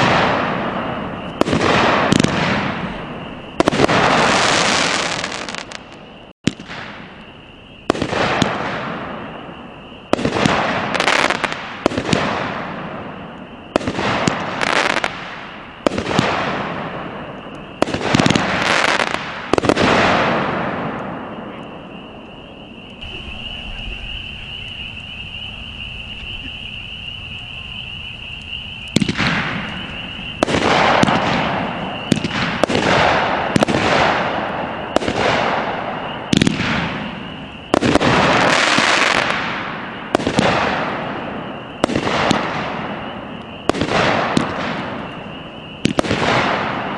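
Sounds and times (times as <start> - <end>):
firework shots: 0.0 - 24.9, 28.6 - 46.9
steady high-pitched tone: 21.2 - 29.0.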